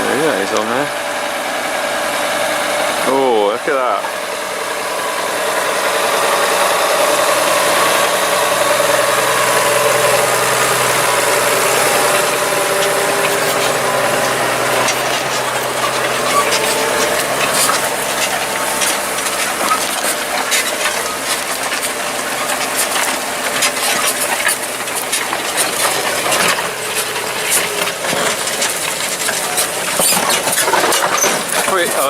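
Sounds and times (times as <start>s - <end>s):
tractor engine running: 0.0s - 32.0s
stones clinking against plough: 10.3s - 32.0s.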